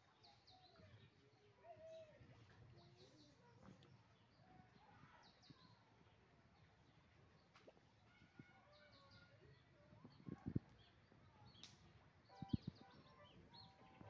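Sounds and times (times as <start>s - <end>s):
bird calls and chirps: 7.4s - 14.0s.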